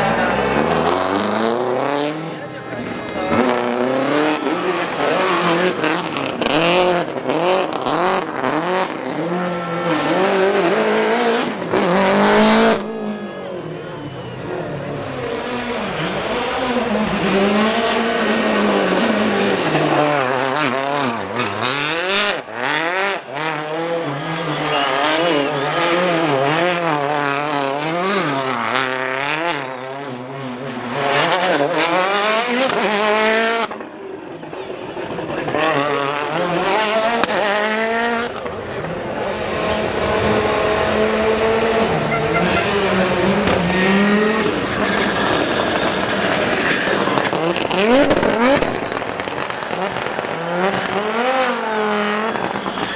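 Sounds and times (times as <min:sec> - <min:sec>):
rally car engine revving: 0:00.0 - 0:52.9
exhaust cracks: 0:00.1 - 0:29.8, 0:40.7 - 0:52.9
tyre squeal: 0:00.8 - 0:22.9, 0:24.0 - 0:28.7, 0:41.5 - 0:52.9.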